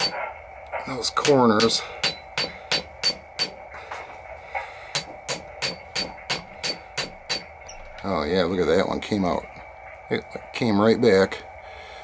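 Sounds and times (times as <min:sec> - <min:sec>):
hammer tapping on metal: 0:00.0 - 0:00.2, 0:01.2 - 0:04.0, 0:04.9 - 0:07.8.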